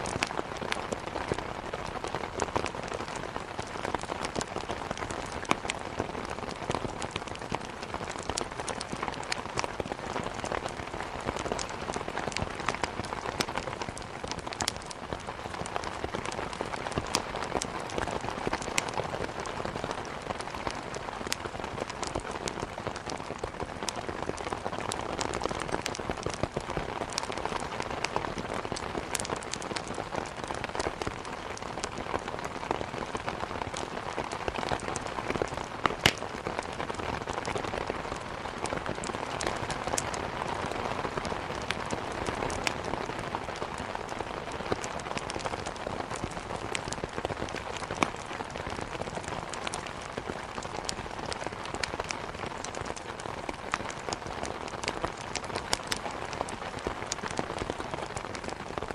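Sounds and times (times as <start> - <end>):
rain hitting a window: 0.0 - 58.9
wood fire crackling: 0.0 - 58.9.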